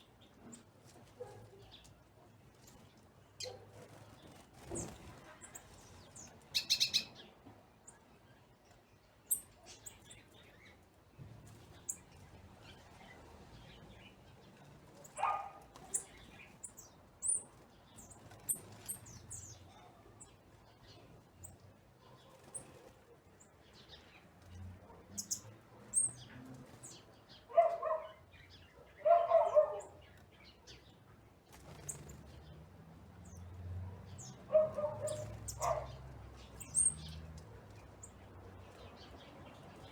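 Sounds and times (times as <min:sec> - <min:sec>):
wild birds chirping: 0:02.6 - 0:07.3, 0:11.6 - 0:39.9.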